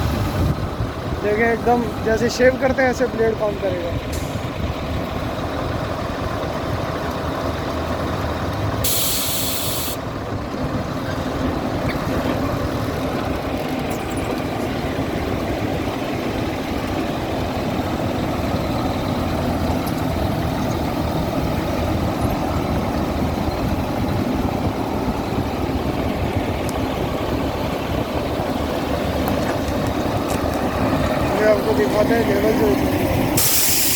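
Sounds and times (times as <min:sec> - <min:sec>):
motor grader running: 0:00.0 - 0:33.9
air release hiss: 0:08.8 - 0:10.0, 0:33.4 - 0:33.9.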